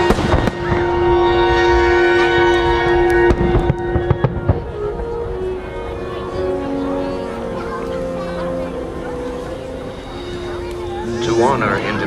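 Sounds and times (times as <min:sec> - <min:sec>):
fireworks popping and crackling: 0:00.0 - 0:01.0
orchestral music: 0:00.0 - 0:12.0.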